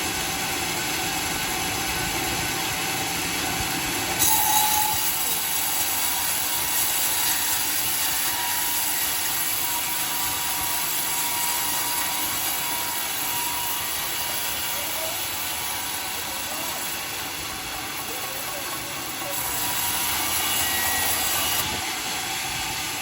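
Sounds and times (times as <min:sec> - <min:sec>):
sawmill running: 0:00.0 - 0:23.0.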